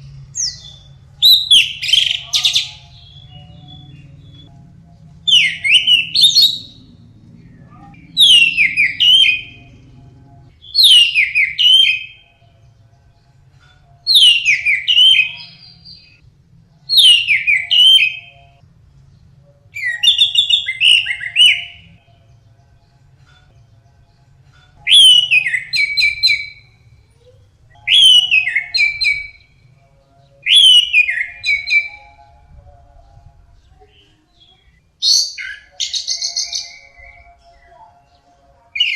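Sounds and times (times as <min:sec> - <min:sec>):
thrush whistling song: 0:00.4 - 0:04.6, 0:05.2 - 0:06.9, 0:07.7 - 0:09.8, 0:10.5 - 0:12.3, 0:14.1 - 0:16.2, 0:16.9 - 0:18.6, 0:19.8 - 0:22.0, 0:24.8 - 0:26.8, 0:27.7 - 0:29.6, 0:30.4 - 0:32.8.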